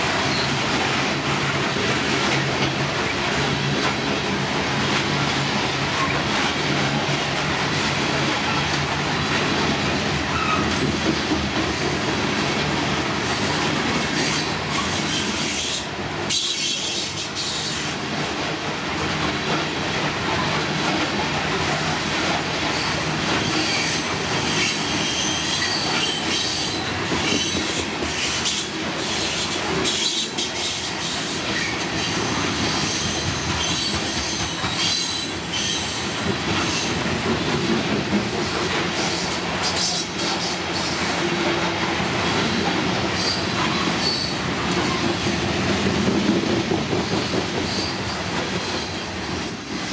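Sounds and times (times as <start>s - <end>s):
train wheels rumbling and clattering: 0.0s - 49.9s
high wheel squeal: 14.2s - 17.8s, 43.2s - 45.0s, 47.1s - 49.9s.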